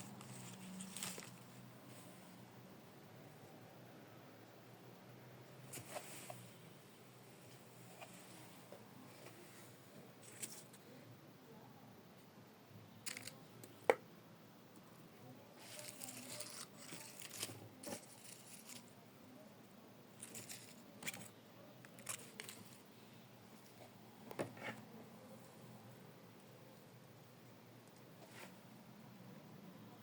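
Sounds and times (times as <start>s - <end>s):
rustling and crinkling: 0.0s - 2.4s, 5.6s - 6.6s, 7.4s - 10.8s, 15.6s - 19.0s, 20.1s - 24.9s, 27.8s - 28.7s.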